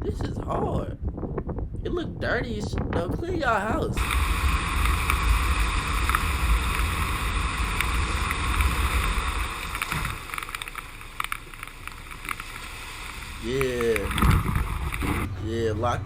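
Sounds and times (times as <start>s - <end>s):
wind: 0.0s - 16.0s
rushing water: 4.0s - 15.3s.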